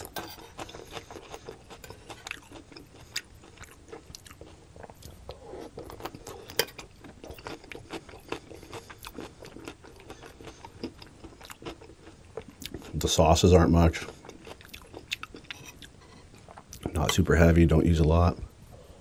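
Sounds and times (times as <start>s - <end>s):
wet chewing crunches: 0.0s - 13.1s, 13.8s - 17.0s
spoon scraping a plate: 15.4s - 16.4s.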